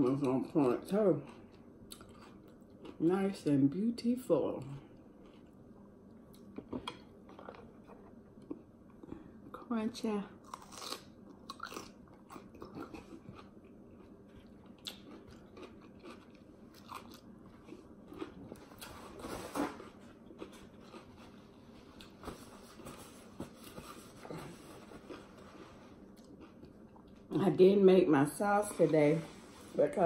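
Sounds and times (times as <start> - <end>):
crunching cucumber: 10.4 - 21.1.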